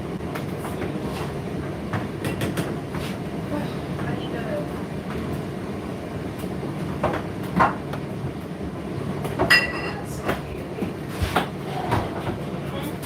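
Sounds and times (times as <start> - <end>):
dishes and cutlery clinking: 9.4 - 10.4.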